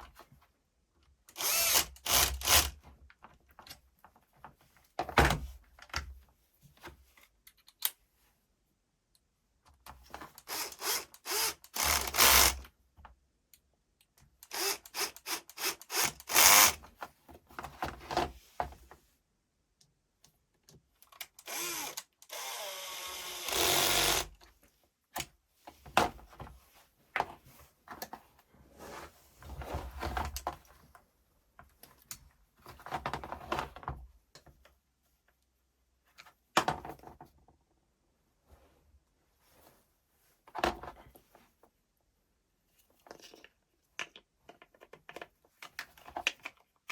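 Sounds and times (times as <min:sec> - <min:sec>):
cordless drill running: 0:01.4 - 0:02.7, 0:10.5 - 0:12.6, 0:14.5 - 0:16.8, 0:21.4 - 0:24.3.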